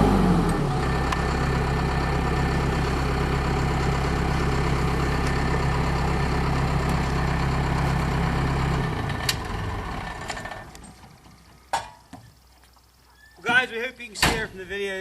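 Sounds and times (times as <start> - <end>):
diesel engine idling: 0.0 - 11.7.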